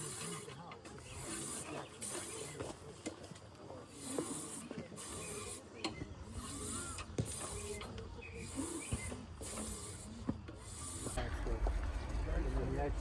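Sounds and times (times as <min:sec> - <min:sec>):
mechanical creaking and squeaking: 0:03.9 - 0:11.2
low rumble: 0:11.2 - 0:13.0.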